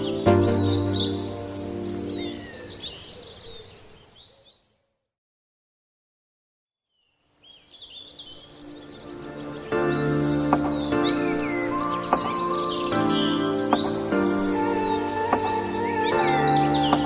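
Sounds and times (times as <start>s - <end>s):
background music: 0.0s - 2.9s, 7.9s - 17.0s
birdsong chirps and trills: 0.0s - 5.2s, 6.9s - 17.0s.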